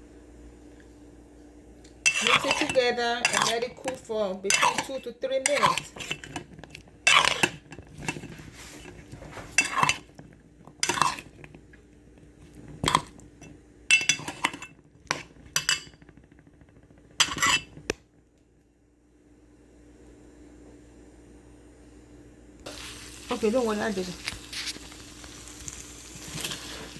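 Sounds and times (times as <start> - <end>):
low steady hum: 0.0 - 26.9
spoon scraping a pan: 2.0 - 11.6, 12.6 - 16.0, 17.2 - 17.9.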